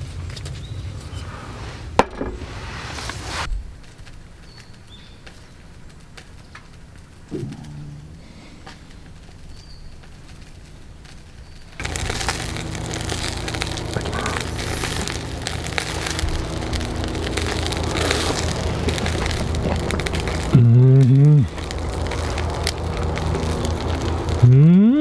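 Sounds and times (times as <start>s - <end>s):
pork sizzling and crackling: 3.7s - 25.0s
low steady hum: 7.1s - 25.0s.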